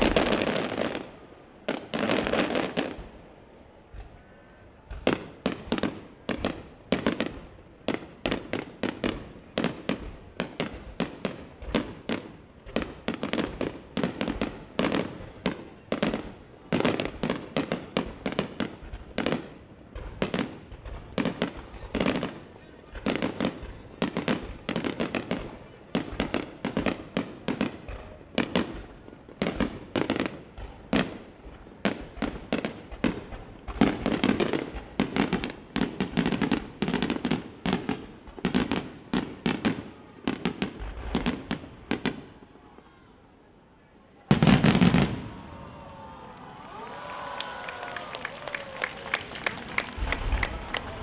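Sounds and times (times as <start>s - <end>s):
very loud firework burst: 44.3s - 51.0s.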